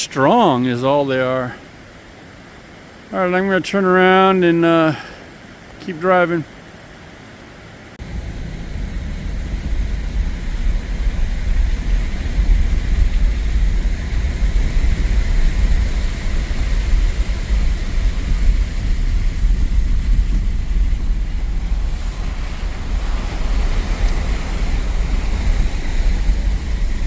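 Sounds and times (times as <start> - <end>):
truck rumbling over rough road: 8.0 - 27.0.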